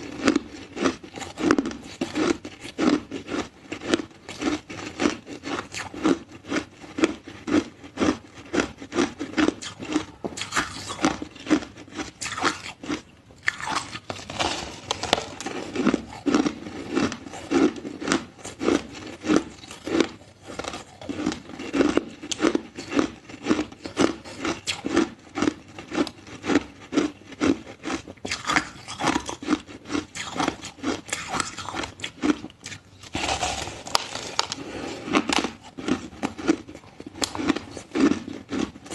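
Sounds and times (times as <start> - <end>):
ice being chewed: 0.0 - 38.9.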